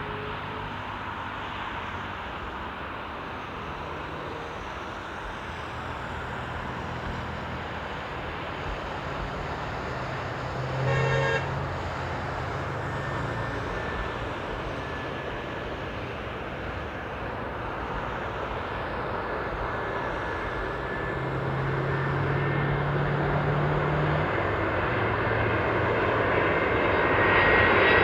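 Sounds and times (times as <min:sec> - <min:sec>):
distant traffic rumble: 0:00.0 - 0:28.0
vehicle horn toot: 0:10.7 - 0:11.8.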